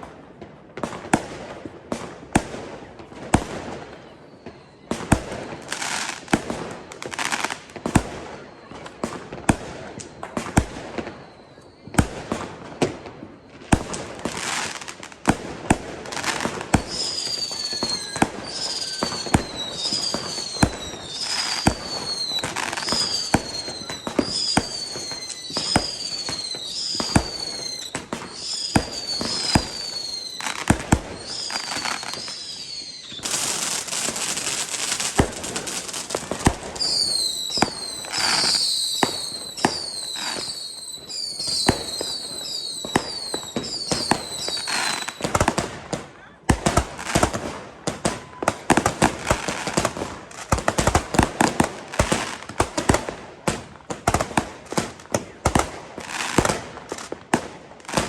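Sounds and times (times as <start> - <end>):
fireworks bangs: 0.0 - 58.0
falling firework whistles: 3.3 - 45.7
firework crackling hiss: 13.8 - 45.8.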